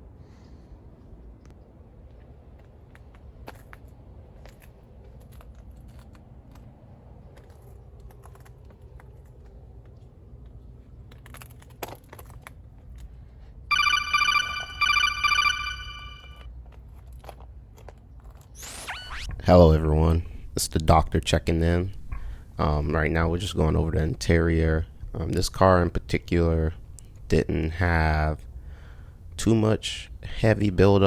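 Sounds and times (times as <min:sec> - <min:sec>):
phone ringtone trilling: 0:13.7 - 0:16.4.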